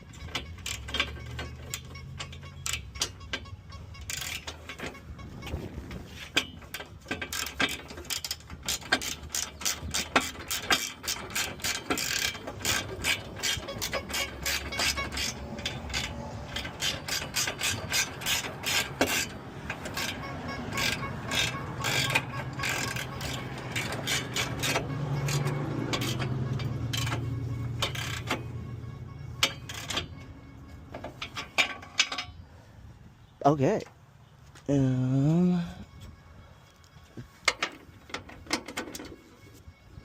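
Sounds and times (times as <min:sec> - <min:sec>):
ratchet wrench clicking: 0:00.0 - 0:05.5, 0:06.3 - 0:30.3.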